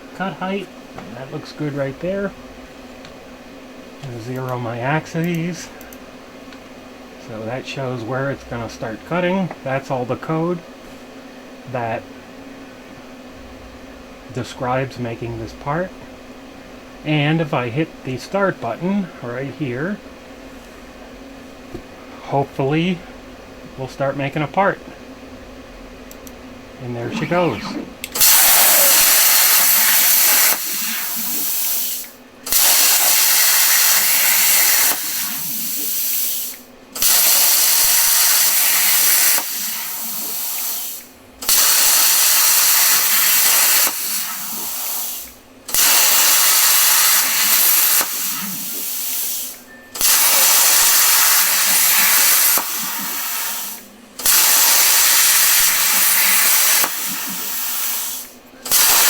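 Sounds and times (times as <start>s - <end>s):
plasma cutter torch hissing: 27.0s - 59.0s.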